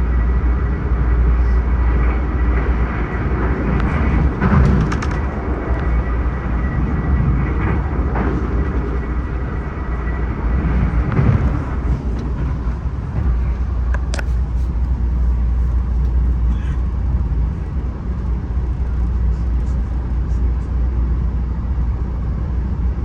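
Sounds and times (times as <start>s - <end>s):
train rumbling in motion: 0.0s - 23.0s.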